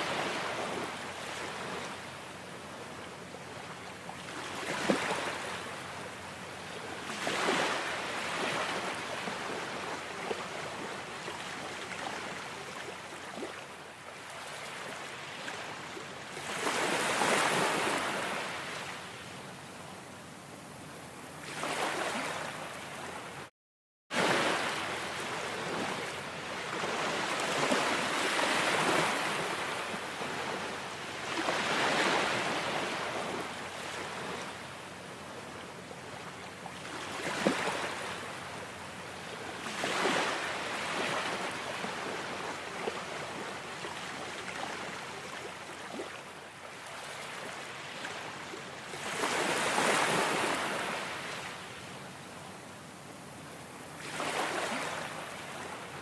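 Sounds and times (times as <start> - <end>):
waves breaking: 0.0 - 2.0, 4.1 - 6.0, 7.0 - 13.6, 14.2 - 19.0, 21.4 - 23.4, 24.1 - 35.3, 36.6 - 38.7, 39.3 - 46.2, 48.9 - 51.6, 53.4 - 56.0.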